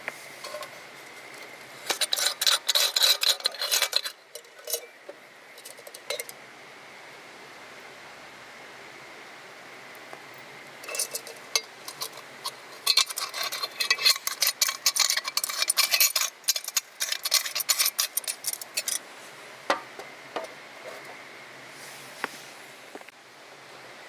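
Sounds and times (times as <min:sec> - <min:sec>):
hard objects clinking and scraping: 0:00.4 - 0:06.4, 0:10.8 - 0:19.0.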